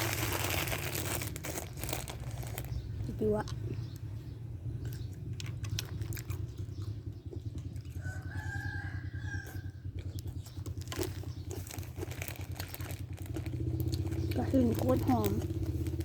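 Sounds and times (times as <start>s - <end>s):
steady low hum: 0.0s - 16.0s
rooster crowing: 7.9s - 9.9s.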